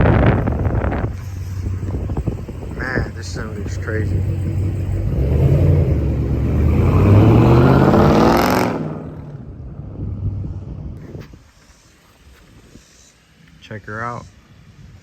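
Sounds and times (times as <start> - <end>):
vehicle engine accelerating: 0.0 - 11.0.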